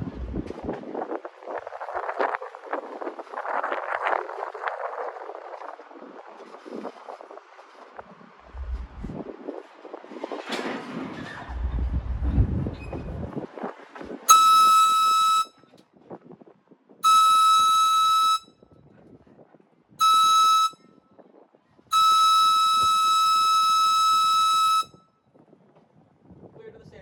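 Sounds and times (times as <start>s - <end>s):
train horn blasts: 14.3s - 15.6s, 17.0s - 18.5s, 20.0s - 20.8s, 21.9s - 25.0s.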